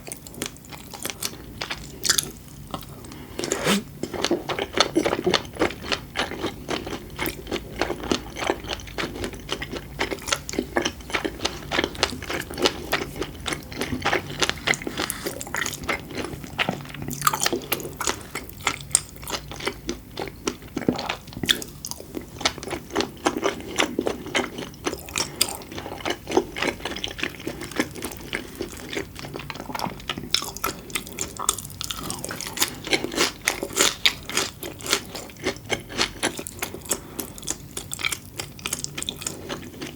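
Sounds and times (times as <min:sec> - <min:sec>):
food crunching: 0:00.0 - 0:39.9.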